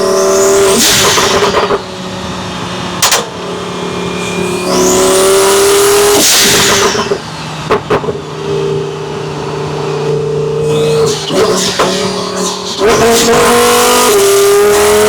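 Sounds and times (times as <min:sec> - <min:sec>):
car engine revving at full throttle: 0:00.0 - 0:15.0
loud rushing burst: 0:10.6 - 0:15.0.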